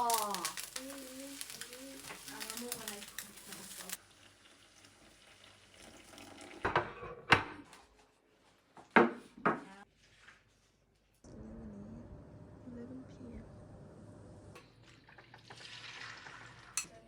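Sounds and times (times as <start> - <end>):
water splashing in a sink: 14.6 - 16.9.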